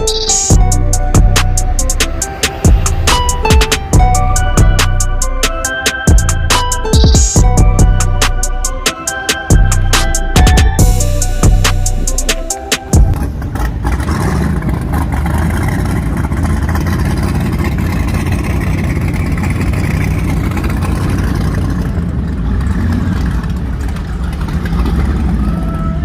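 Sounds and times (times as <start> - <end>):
music beats: 0.0 - 13.2
large engine rumbling: 0.0 - 26.0.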